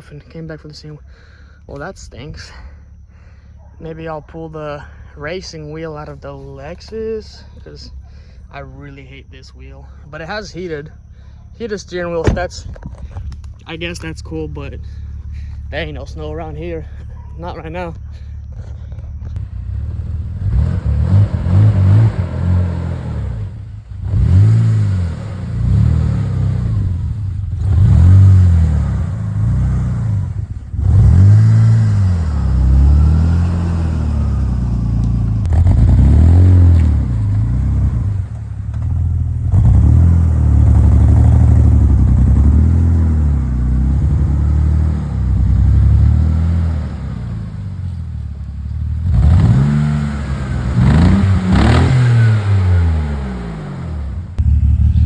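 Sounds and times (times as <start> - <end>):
car engine revving: 19.3 - 55.0.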